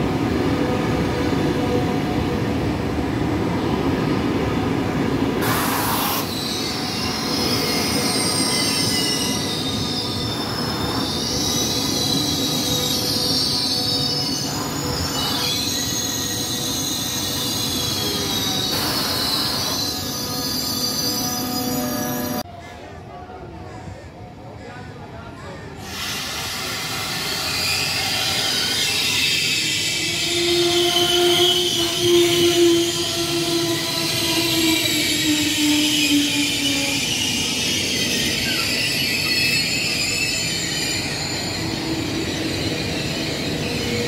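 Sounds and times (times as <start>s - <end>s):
train rumbling: 0.0s - 22.5s
train wheels squealing: 5.4s - 22.5s, 25.8s - 44.0s.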